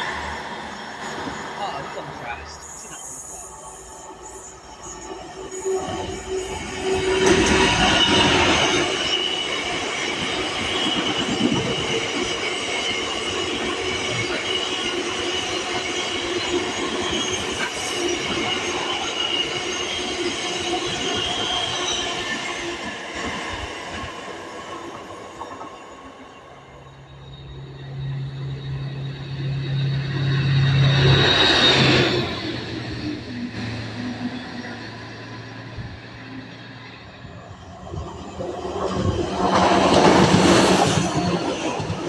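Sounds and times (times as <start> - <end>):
train wheel squeal: 0.0 - 42.0
wheels rumbling on rails: 0.0 - 42.0.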